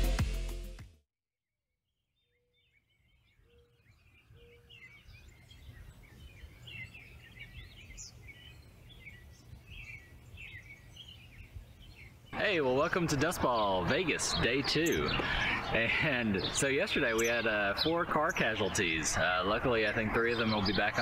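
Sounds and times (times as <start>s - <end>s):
music: 0.0s - 1.0s
small birds chirping: 2.2s - 21.0s.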